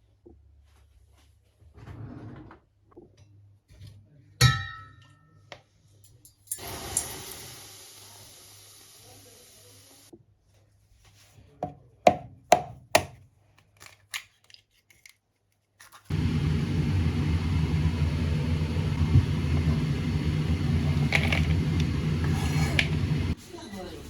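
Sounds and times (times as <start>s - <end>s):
knife chopping on wooden board: 11.6s - 13.2s.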